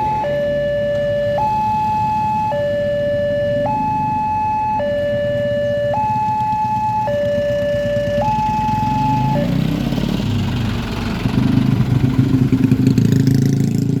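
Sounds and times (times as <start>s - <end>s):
two-tone crossing alarm: 0.0s - 9.7s
vehicle engines running: 0.0s - 14.0s.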